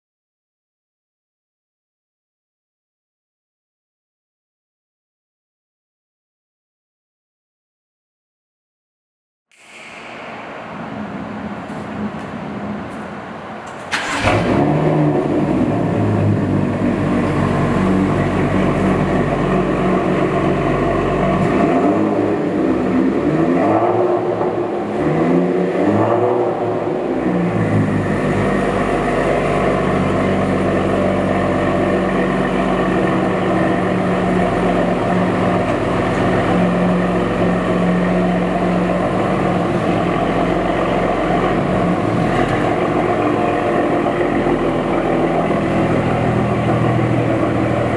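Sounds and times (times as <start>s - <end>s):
car engine idling: 10.0s - 23.5s, 24.1s - 47.9s.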